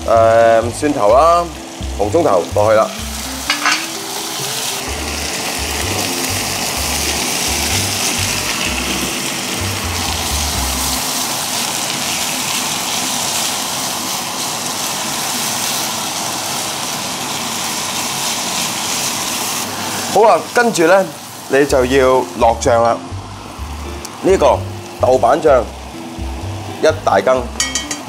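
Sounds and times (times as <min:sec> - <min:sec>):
background music with bass line: 0:00.0 - 0:03.6, 0:04.9 - 0:11.0, 0:21.7 - 0:28.0
vegetables sizzling in hot oil: 0:00.0 - 0:28.0.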